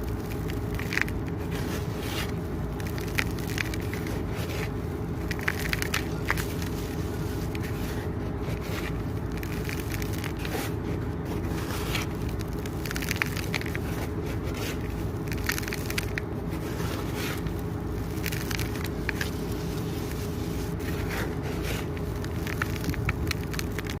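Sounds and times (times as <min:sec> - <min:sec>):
cement and sand crumbling: 0:00.0 - 0:24.0.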